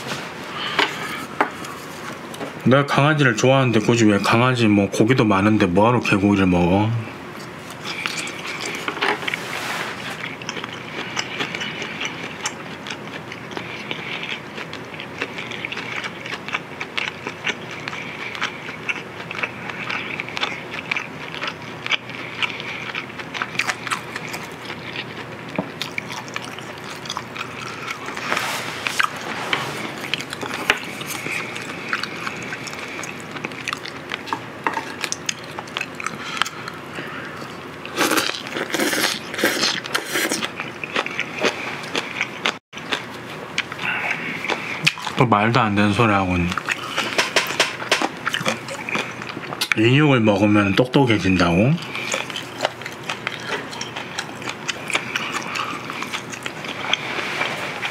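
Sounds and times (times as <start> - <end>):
man chewing ribs: 0.0 - 2.6, 7.0 - 49.8, 51.0 - 57.9.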